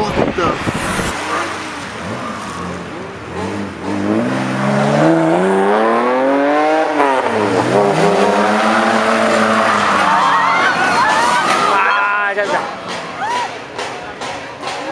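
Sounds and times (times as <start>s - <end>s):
car engine accelerating hard: 0.0s - 11.8s.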